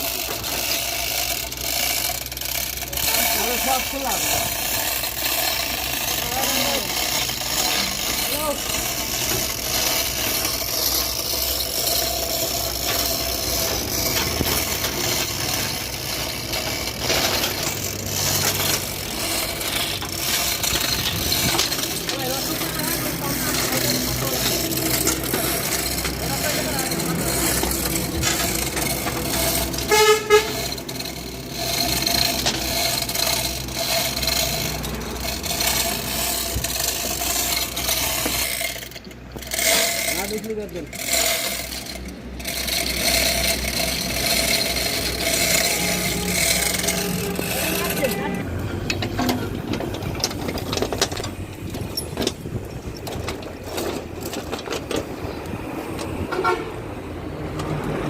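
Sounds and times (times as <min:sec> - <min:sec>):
excavator diesel engine running: 0:00.0 - 0:58.0
hydraulics working: 0:00.0 - 0:58.0
vehicle horn toots: 0:29.9 - 0:30.6, 0:56.3 - 0:56.8.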